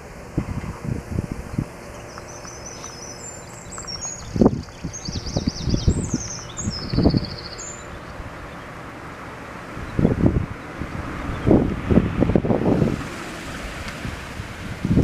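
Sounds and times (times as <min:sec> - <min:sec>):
wind buffeting the microphone: 0:00.0 - 0:15.0
songbird chirping and trilling: 0:01.4 - 0:11.7.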